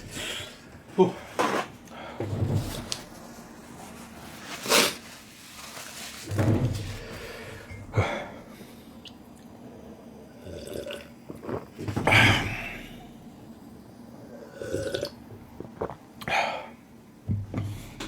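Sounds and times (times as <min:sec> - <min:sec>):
slurping and chewing noodles: 0:10.4 - 0:11.8, 0:14.6 - 0:16.1.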